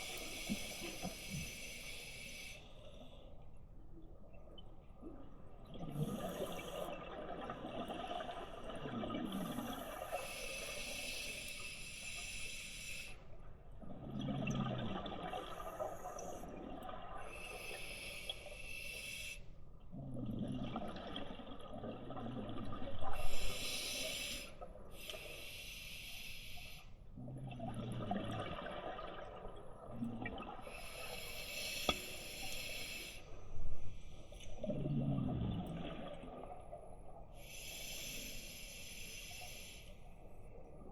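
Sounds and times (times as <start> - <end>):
bubbling exhale underwater: 34.6 - 36.6.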